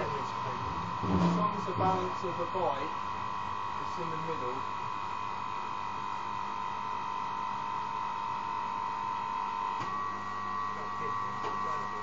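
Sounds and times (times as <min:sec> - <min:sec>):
electric motor whining: 0:00.0 - 0:08.2.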